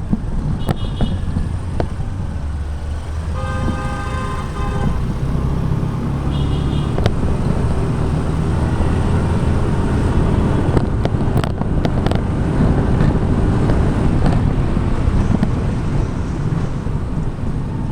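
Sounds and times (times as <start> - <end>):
motor scooter engine: 0.0 - 17.9
road and wind noise: 0.0 - 17.9
short knocks: 0.1 - 2.0.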